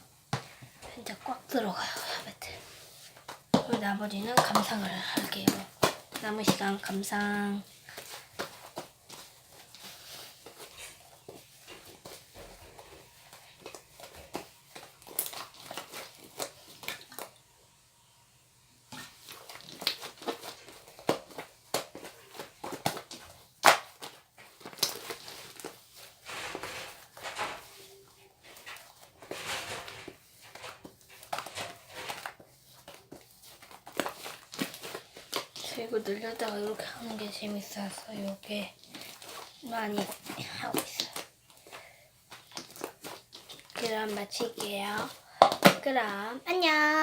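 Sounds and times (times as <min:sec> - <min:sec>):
slime crackling and popping: 0:13.6 - 0:17.3, 0:18.9 - 0:27.4, 0:30.6 - 0:41.6, 0:42.3 - 0:46.0.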